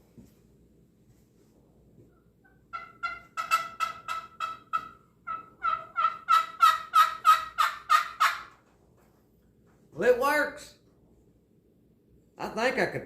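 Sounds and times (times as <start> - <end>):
wooden turkey call notes: 2.0 - 8.8.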